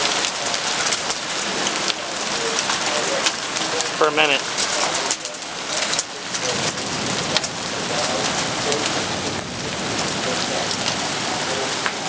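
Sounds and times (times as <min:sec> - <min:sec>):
heavy rain falling: 0:00.0 - 0:12.0
raindrops tapping close by: 0:00.0 - 0:12.0.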